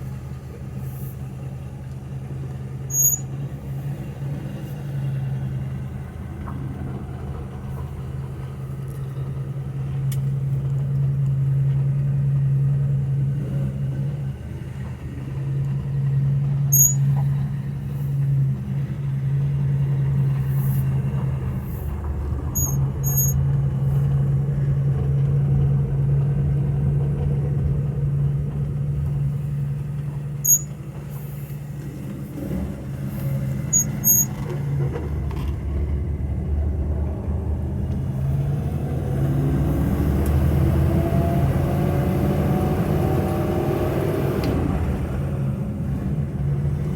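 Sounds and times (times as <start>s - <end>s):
car engine running: 0.0s - 46.9s
high-pitched chirps: 16.8s - 17.0s, 22.6s - 23.4s, 30.5s - 30.7s.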